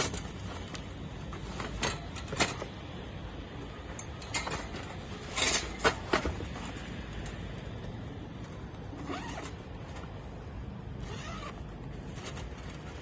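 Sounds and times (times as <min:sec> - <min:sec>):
metal parts clicking and knocking: 0:03.9 - 0:06.6.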